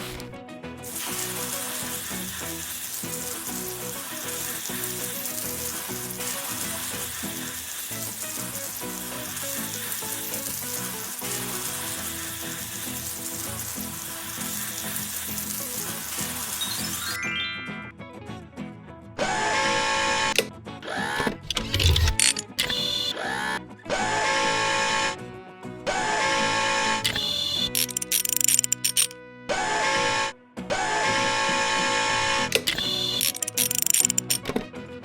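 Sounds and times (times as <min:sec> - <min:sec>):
arc welding crackling sizzle: 0:00.0 - 0:17.2, 0:21.0 - 0:23.6, 0:27.0 - 0:29.1, 0:31.0 - 0:34.5
faint background music: 0:00.0 - 0:35.0.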